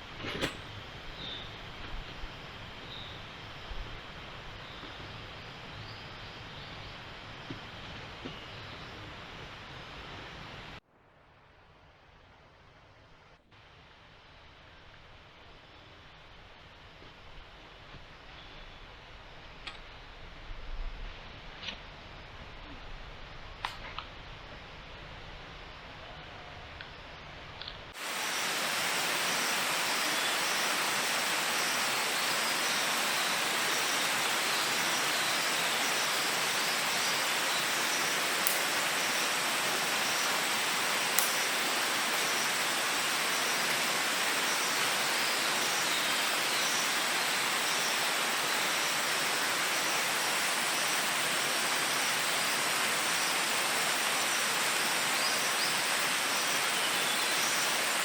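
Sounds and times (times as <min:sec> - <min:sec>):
running water hiss: 0:27.9 - 0:58.0.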